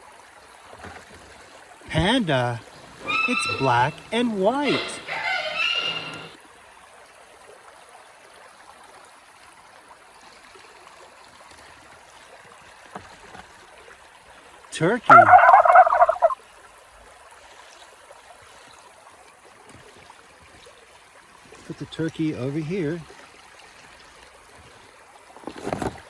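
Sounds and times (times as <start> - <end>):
faint stream: 0.0 - 26.0
person speaking: 1.9 - 5.2, 14.8 - 16.3
turkey gobbling: 2.3 - 6.4, 15.1 - 16.4.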